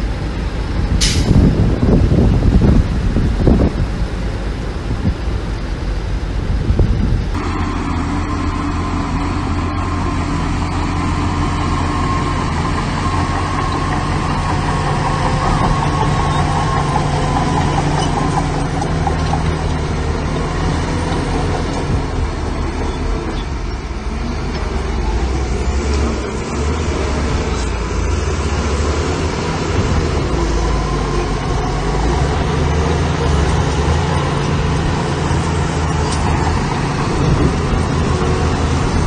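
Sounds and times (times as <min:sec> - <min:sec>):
heavy diesel machinery droning: 0:00.0 - 0:39.0.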